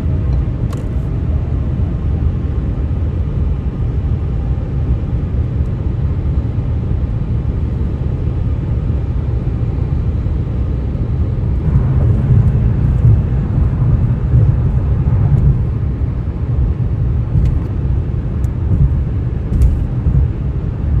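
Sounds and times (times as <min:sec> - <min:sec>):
tyres rumbling on road: 0:11.3 - 0:21.0.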